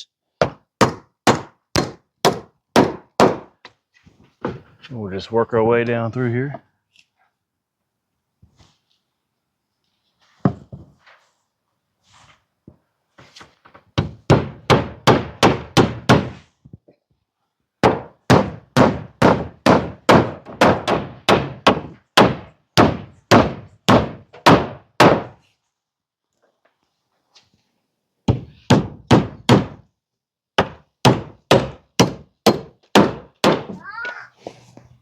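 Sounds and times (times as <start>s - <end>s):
hammer driving nails into wood: 0.4s - 3.6s, 14.0s - 16.5s, 17.8s - 25.4s, 28.3s - 29.9s, 30.6s - 33.8s.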